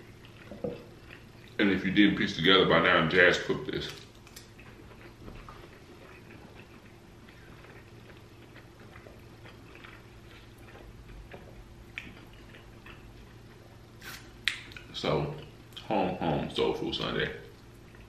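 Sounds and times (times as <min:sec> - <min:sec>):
soft chewing: 0:00.0 - 0:01.8, 0:03.8 - 0:15.9, 0:17.4 - 0:18.0
faint electrical hum: 0:00.0 - 0:18.0
wet mouth clicks: 0:14.0 - 0:14.9.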